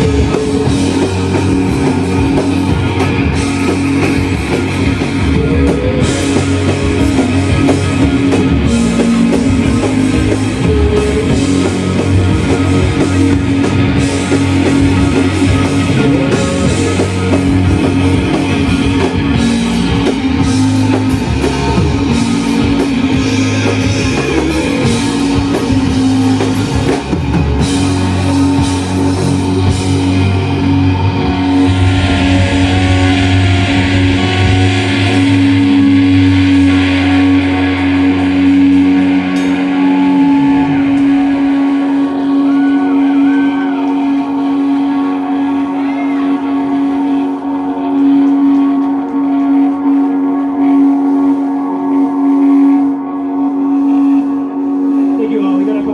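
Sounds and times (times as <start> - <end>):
bass guitar: 0.0 - 55.9
distorted electric guitars: 0.0 - 55.9
drum kit: 0.0 - 55.9.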